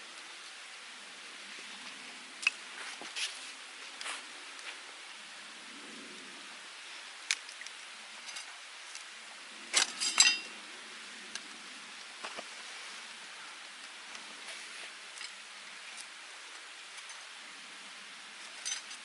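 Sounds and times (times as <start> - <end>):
faint fire hiss: 0.0 - 19.0
wood fire crackling: 0.0 - 19.0
metallic clink: 9.8 - 10.5, 18.4 - 19.0.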